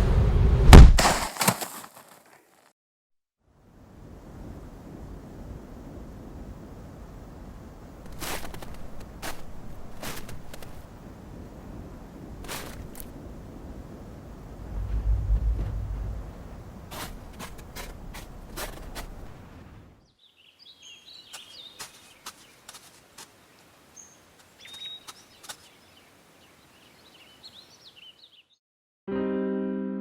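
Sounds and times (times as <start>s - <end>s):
low rumbling noise: 14.4s - 19.9s
small birds chirping: 20.0s - 28.6s
piano chord: 29.1s - 30.0s.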